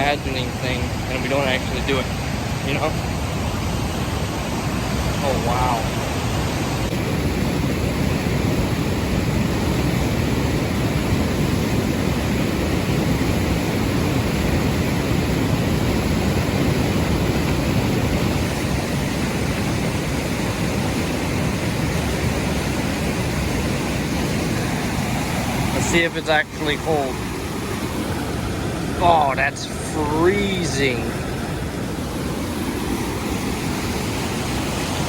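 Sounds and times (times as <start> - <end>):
waterfall rushing: 21.7 - 35.0.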